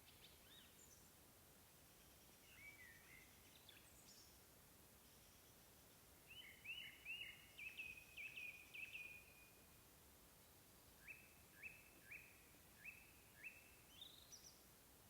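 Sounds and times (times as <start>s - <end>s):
outdoor background noise: 0.0s - 15.0s
songbird calls: 6.3s - 9.5s, 11.0s - 14.6s.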